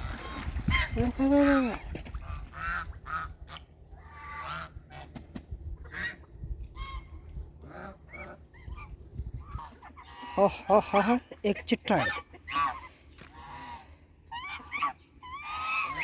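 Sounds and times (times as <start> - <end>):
low rumble: 0.0 - 10.2
ducks calling: 0.0 - 16.0.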